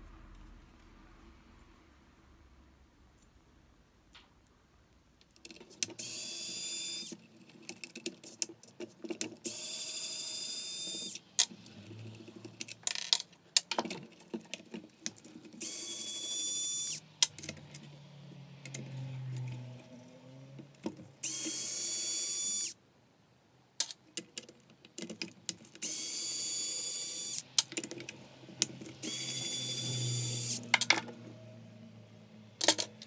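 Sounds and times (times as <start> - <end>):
electric screwdriver whining: 6.0 - 7.2, 9.5 - 11.2, 15.6 - 17.0, 21.2 - 22.8, 25.8 - 27.4, 28.9 - 30.8
clicks and knocks of screws: 32.6 - 33.0.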